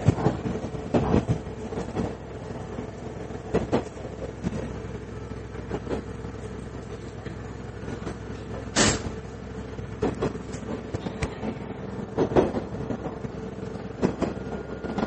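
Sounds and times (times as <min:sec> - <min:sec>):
diesel railcar engine drone: 0:00.0 - 0:15.0
wheels clacking over rail joints: 0:00.0 - 0:15.0.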